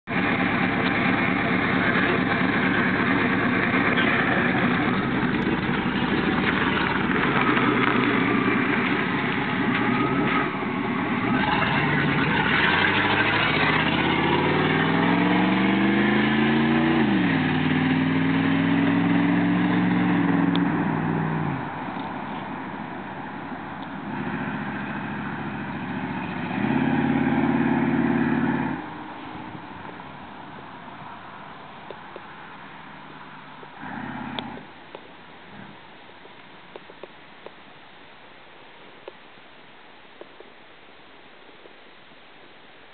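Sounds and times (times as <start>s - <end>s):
loud engine idling and revving: 0.0s - 30.0s, 33.1s - 34.8s.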